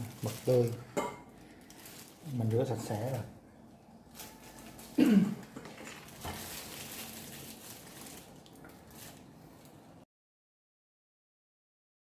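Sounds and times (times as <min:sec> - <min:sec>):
squishing of meat filling: 0:00.0 - 0:03.3.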